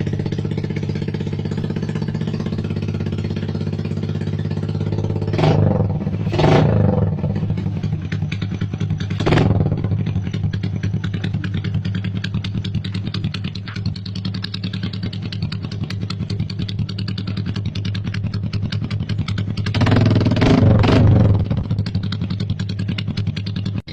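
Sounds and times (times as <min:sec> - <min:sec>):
motorcycle engine idling: 0:00.0 - 0:23.9
motorcycle engine revving: 0:00.0 - 0:23.9.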